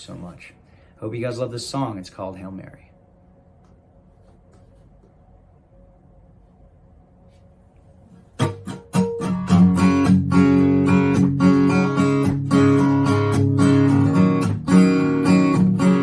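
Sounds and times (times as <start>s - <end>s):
acoustic guitar strumming: 8.4s - 16.0s.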